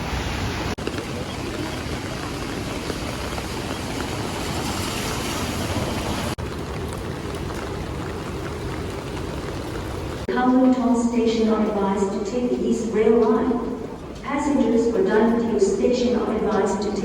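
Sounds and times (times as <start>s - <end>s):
heavy rain: 0.0s - 15.1s.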